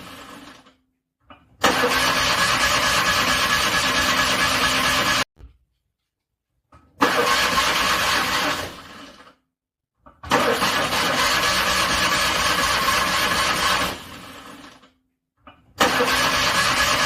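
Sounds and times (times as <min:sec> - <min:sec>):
car engine cranking on starter: 0:01.6 - 0:05.2, 0:07.0 - 0:09.3, 0:10.2 - 0:14.8, 0:15.8 - 0:17.0.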